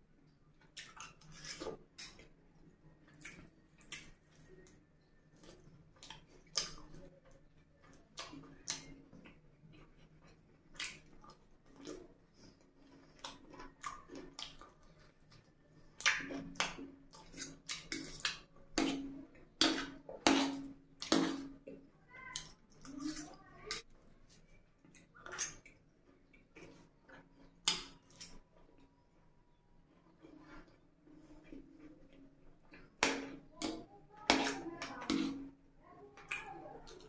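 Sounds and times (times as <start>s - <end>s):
wet chewing: 3.0s - 35.6s.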